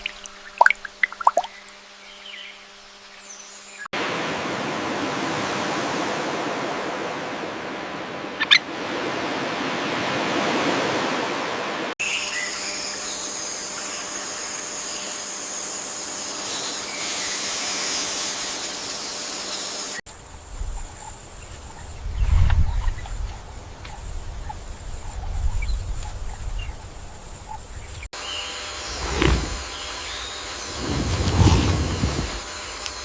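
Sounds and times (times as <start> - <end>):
steady rushing hiss: 13.4 - 21.6, 28.5 - 33.0
low rumbles: 28.9 - 29.8, 30.6 - 32.5.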